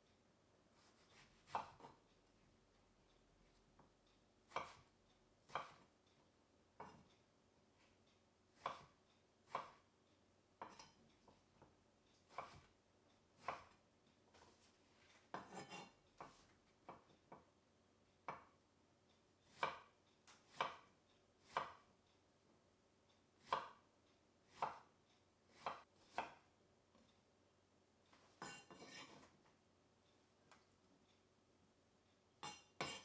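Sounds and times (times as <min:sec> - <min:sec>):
knife cutting on cutting board: 0:00.8 - 0:02.0, 0:15.3 - 0:16.4, 0:25.5 - 0:26.4, 0:28.4 - 0:29.3, 0:32.4 - 0:33.0.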